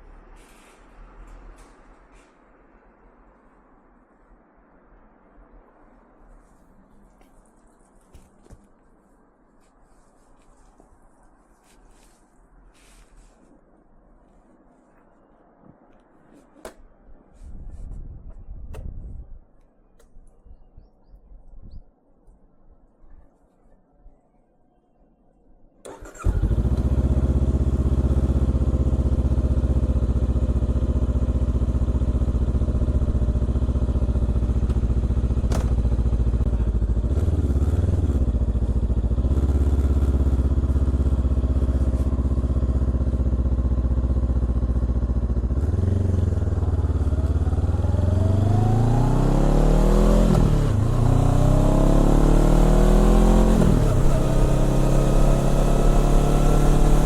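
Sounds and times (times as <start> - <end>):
motorcycle engine idling and revving: 25.9 - 57.0.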